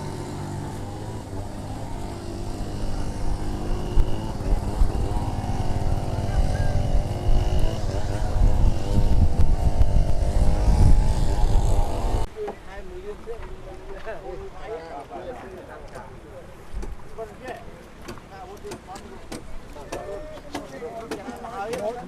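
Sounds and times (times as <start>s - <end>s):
engine running: 0.0s - 12.3s.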